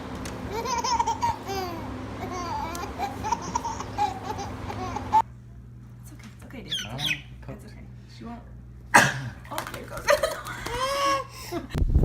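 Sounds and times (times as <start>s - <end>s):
baby babbling and laughing: 0.5s - 5.2s.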